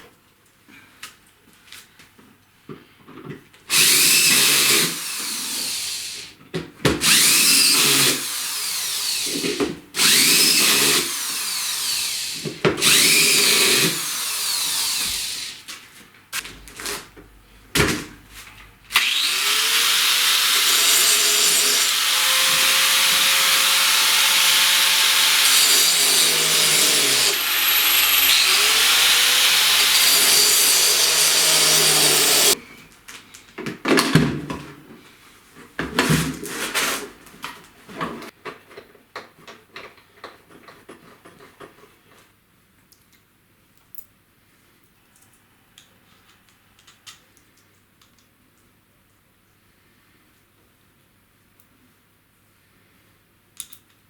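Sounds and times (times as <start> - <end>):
electric drill running: 3.7 - 6.3, 7.0 - 15.6, 18.9 - 32.6.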